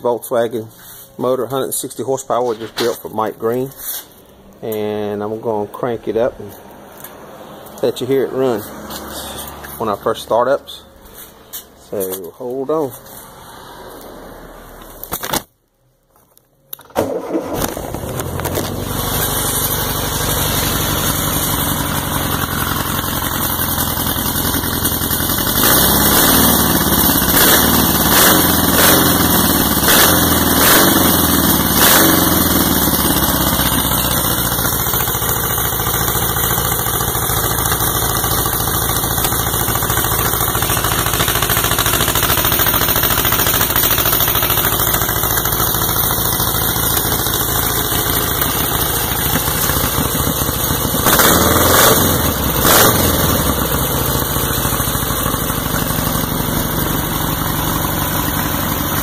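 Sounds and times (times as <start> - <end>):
car engine revving: 6.0 - 10.9, 17.0 - 59.0
car engine idling: 16.6 - 59.0.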